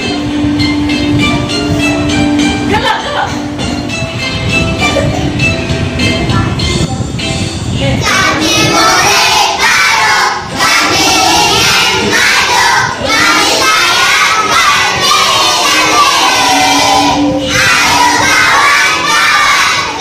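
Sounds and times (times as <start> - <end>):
children singing in unison: 8.0 - 20.0.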